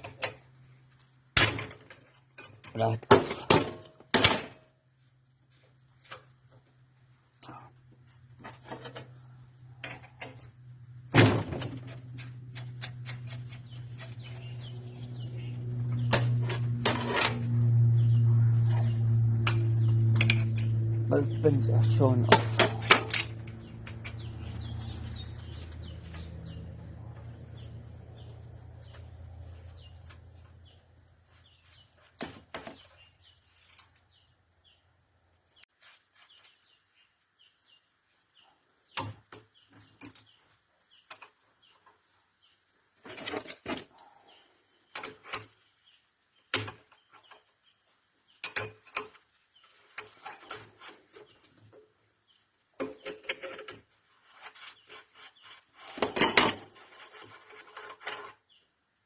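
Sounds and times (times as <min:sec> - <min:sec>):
tools scraping engine parts: 0:11.7 - 0:27.7, 0:48.4 - 0:51.6, 0:52.8 - 0:58.6
low hum: 0:11.8 - 0:30.9
hand tools clinking on metal: 0:56.0 - 0:57.3.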